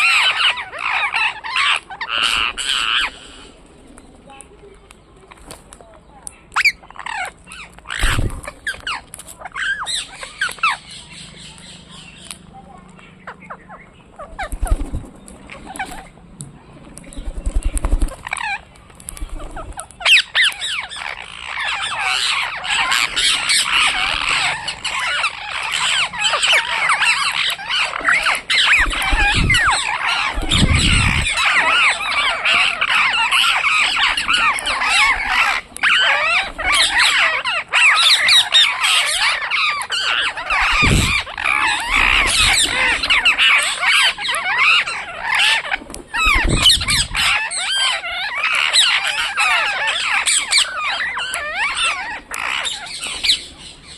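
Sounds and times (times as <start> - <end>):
parrots chattering and squawking: 0.0 - 5.6, 6.3 - 16.4, 17.0 - 53.9
low rumbles: 28.8 - 31.4, 40.5 - 42.9, 46.1 - 47.4.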